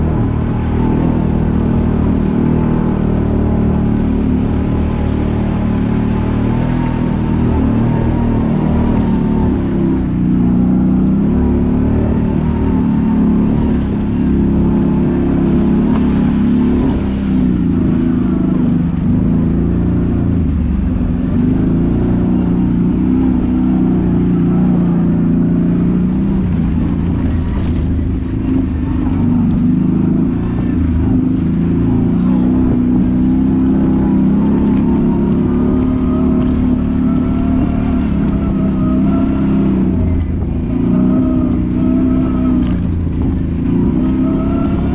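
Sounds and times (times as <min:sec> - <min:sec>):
atv engine running: 0:00.0 - 0:44.9.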